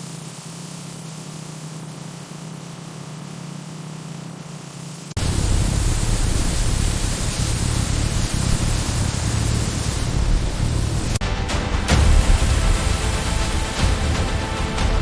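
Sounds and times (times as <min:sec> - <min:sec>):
loud steady rushing noise: 0:05.0 - 0:15.0.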